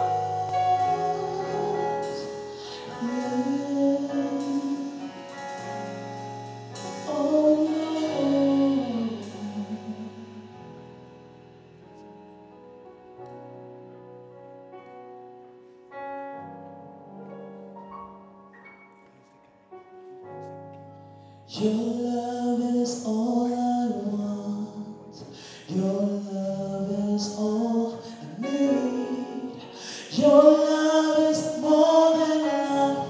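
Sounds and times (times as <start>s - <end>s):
sustained keyboard chords: 0.0s - 15.5s.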